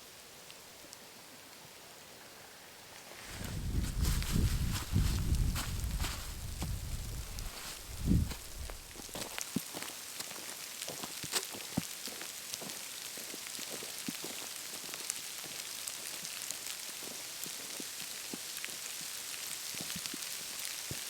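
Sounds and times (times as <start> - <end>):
campfire crackling and popping: 3.2 - 10.2.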